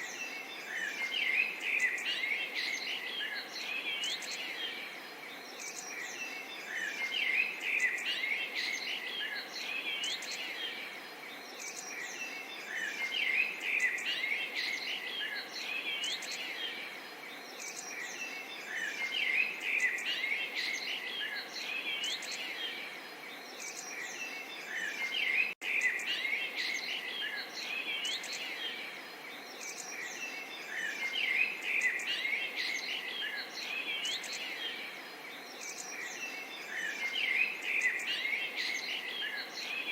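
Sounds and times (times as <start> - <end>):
small songbirds chirping: 0.0 - 39.9.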